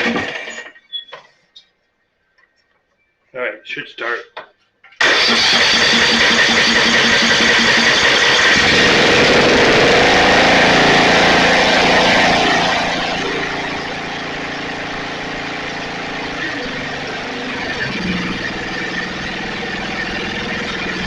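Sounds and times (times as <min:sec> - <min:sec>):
riding mower engine running: 0:05.0 - 0:21.0.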